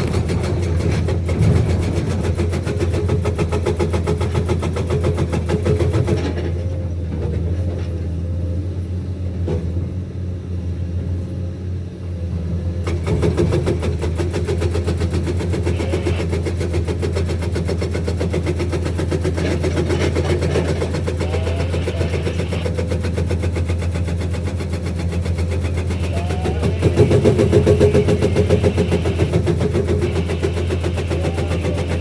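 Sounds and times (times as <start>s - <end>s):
diesel engine running: 0.0s - 32.0s
hydraulic breaker hammering: 12.8s - 32.0s.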